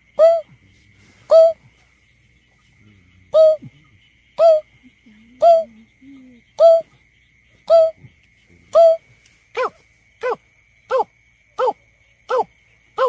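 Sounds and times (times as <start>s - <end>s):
bird hooting calls: 0.2s - 0.6s, 1.3s - 1.7s, 3.3s - 4.7s, 5.3s - 6.9s, 7.6s - 9.0s.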